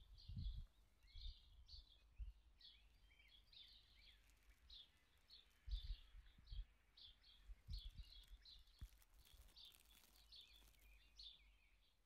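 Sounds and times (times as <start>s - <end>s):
faint bird chirping: 0.0s - 12.0s.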